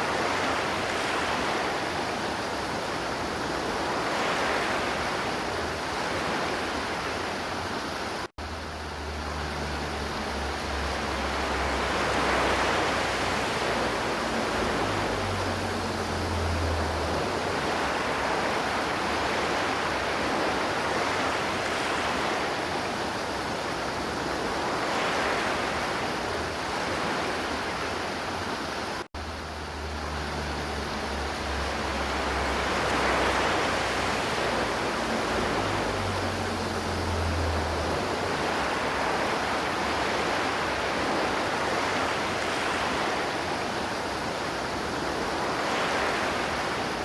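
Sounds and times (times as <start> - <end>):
river water rushing: 0.0 - 47.0.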